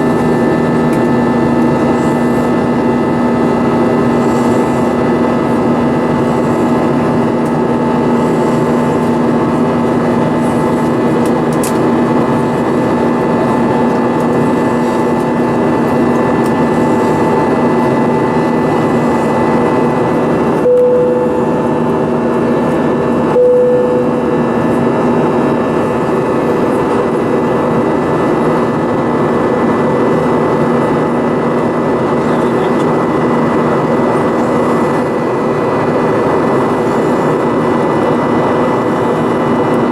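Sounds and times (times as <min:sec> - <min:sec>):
jet engines droning in cabin: 0:00.0 - 0:39.9
short cabin tones: 0:20.6 - 0:21.9, 0:23.3 - 0:24.5.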